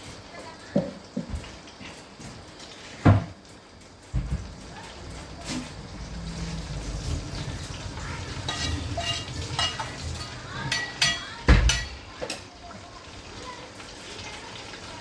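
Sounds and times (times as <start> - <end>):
pressure cooker bubbling and sizzling: 0.0 - 15.0
metal cookware clinks: 8.2 - 12.5.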